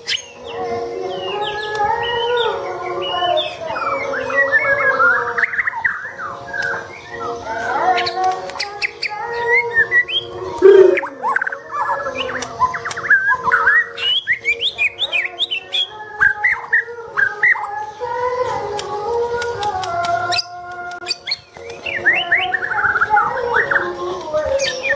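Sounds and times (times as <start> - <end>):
songbirds singing and chirping: 0.0 - 24.9
louder lower bird call: 10.6 - 11.2.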